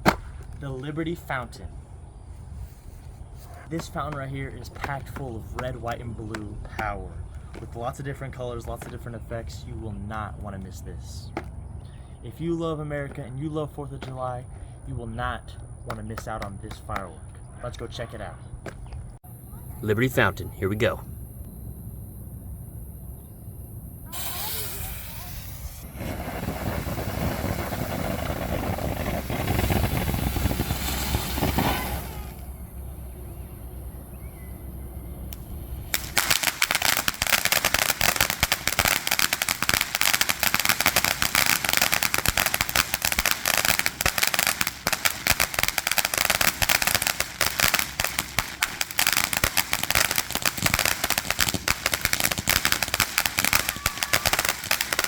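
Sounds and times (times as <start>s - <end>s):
firework crackling: 24.1s - 32.6s, 35.3s - 55.0s.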